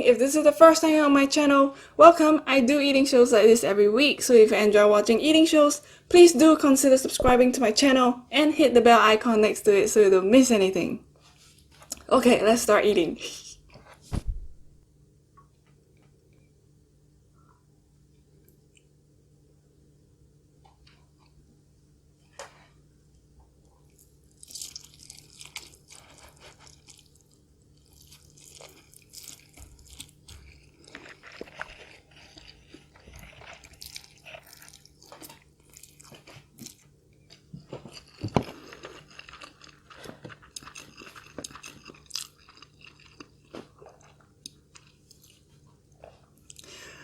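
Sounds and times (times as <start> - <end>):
person chewing with crackles: 23.4 - 47.0.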